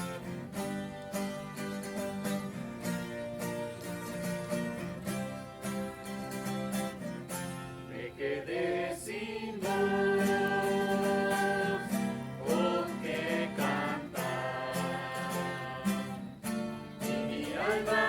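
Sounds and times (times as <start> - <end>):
strummed acoustic guitar: 0.0 - 18.0
person singing a hymn: 7.9 - 16.4, 17.0 - 18.0.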